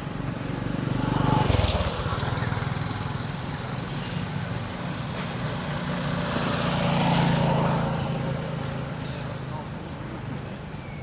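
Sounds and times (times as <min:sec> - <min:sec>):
vehicle engine passing: 0:00.7 - 0:04.2.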